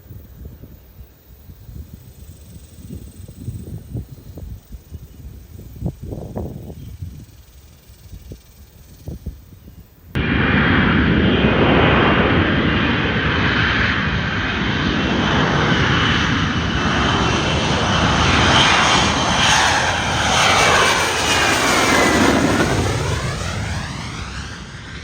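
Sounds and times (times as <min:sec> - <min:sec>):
fighter jet passing: 0:10.2 - 0:25.0.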